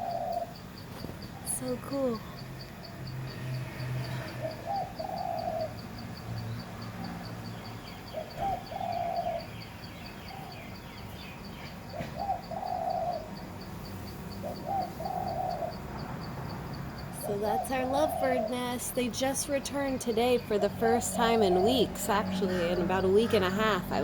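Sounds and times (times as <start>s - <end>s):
dove cooing: 0.0s - 0.6s, 3.9s - 6.2s, 7.0s - 13.5s, 14.1s - 16.4s, 17.0s - 24.0s.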